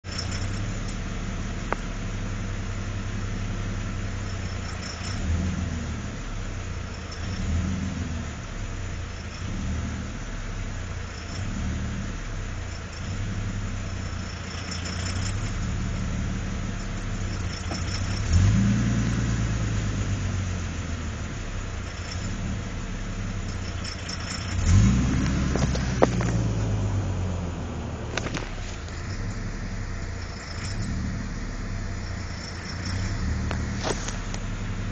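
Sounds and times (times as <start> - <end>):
engine knocking tick: 0.0 - 2.0, 3.8 - 5.6, 10.9 - 20.0, 21.6 - 26.5, 28.1 - 34.9
car engine idling with surging revs: 0.0 - 34.9
engine throttle blips: 0.0 - 34.9.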